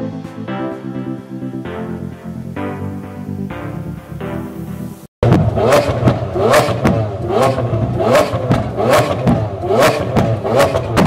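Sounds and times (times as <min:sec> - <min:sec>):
car engine revving: 0:05.0 - 0:11.0.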